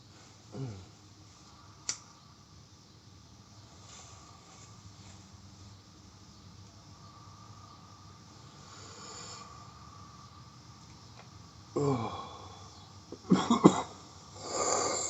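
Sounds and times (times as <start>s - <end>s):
breathy exhale: 8.5s - 9.9s, 11.8s - 12.9s, 14.4s - 15.0s
man coughing: 13.2s - 14.0s.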